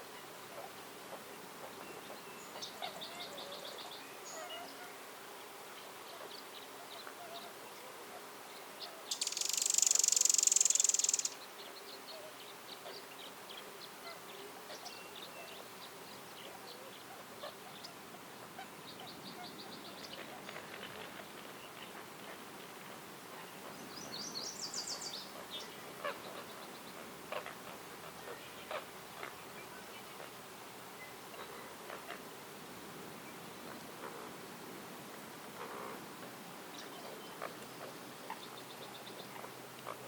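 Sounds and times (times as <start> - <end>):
woodland birds chirping: 9.1 - 13.9, 23.4 - 27.0.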